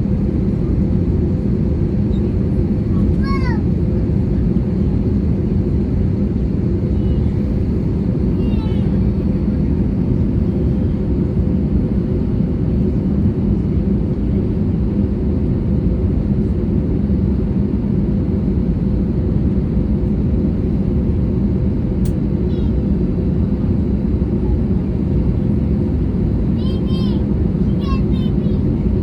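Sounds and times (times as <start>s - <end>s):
airplane cabin engine rumble: 0.0s - 29.0s
brief click: 22.0s - 22.2s.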